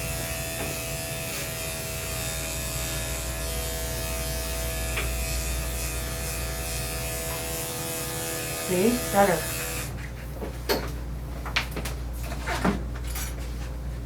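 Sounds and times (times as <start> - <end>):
electric clippers humming: 0.0 - 10.0.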